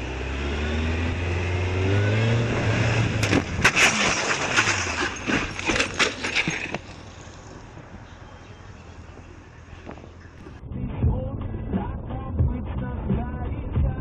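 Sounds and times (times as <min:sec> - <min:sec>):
car engine humming: 0:00.0 - 0:12.3
sharp knocks and crunching impacts: 0:03.1 - 0:08.1.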